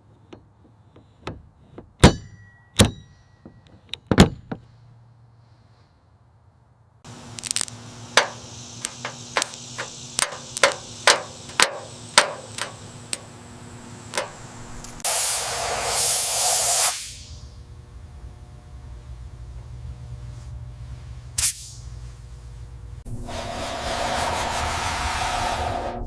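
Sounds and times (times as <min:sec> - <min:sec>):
low hum: 0:04.7 - 0:16.0, 0:17.0 - 0:26.0
loud spray hiss: 0:07.1 - 0:13.1, 0:13.8 - 0:17.4, 0:21.4 - 0:21.8
sharp knocks and taps: 0:08.2 - 0:12.8.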